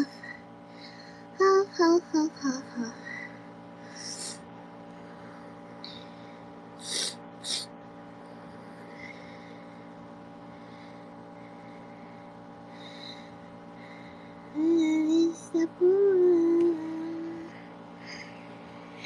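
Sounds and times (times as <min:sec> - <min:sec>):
air conditioner humming: 0:00.0 - 0:19.0
sharp puffs of breath: 0:05.9 - 0:07.7.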